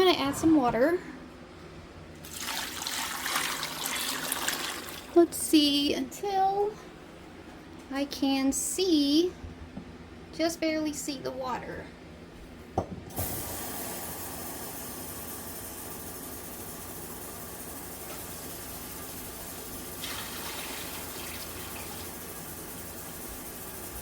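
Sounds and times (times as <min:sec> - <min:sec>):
water running into a pot: 0:02.2 - 0:05.2, 0:17.8 - 0:23.6.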